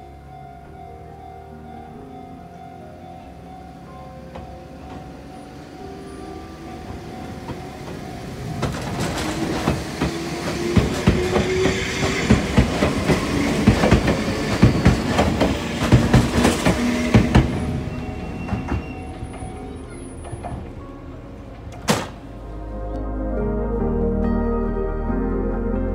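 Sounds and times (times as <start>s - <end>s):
electric train passing: 0.0s - 22.9s
rising train whine: 0.0s - 25.9s
wheels clacking over rail joints: 6.7s - 22.2s.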